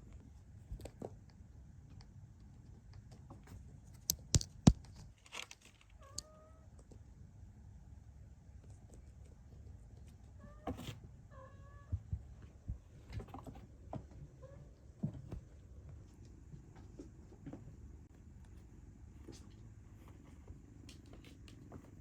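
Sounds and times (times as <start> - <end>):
soft knocks and thumps: 14.9 - 15.7.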